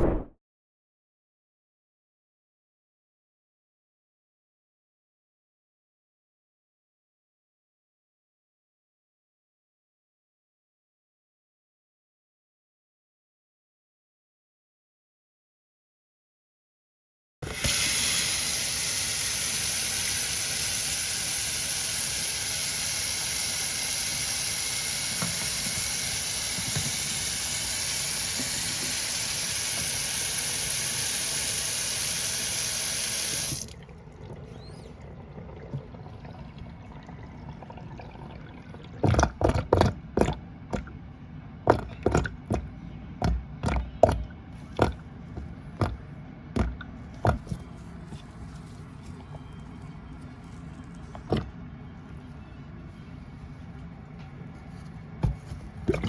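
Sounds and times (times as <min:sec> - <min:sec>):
faucet running into sink: 0:17.4 - 0:40.9
sink drain gurgling: 0:17.4 - 0:40.9, 0:41.7 - 0:46.0.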